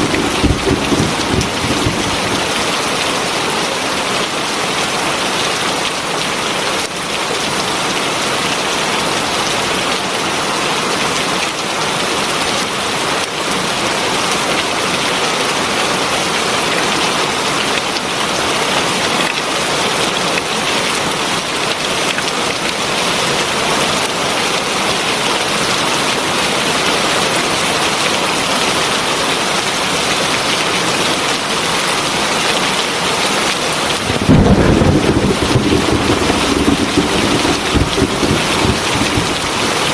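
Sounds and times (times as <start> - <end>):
heavy rain pouring: 0.0 - 9.8, 32.9 - 39.9
loud low rumble: 34.0 - 39.9.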